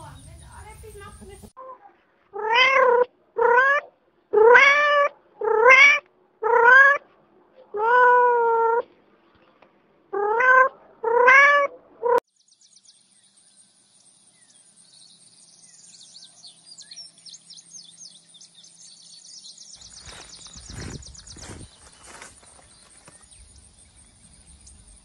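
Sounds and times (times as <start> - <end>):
faint high-pitched chirping: 0.0 - 1.9, 12.1 - 25.0
cat meowing: 2.4 - 7.0, 7.8 - 8.8, 10.2 - 12.2.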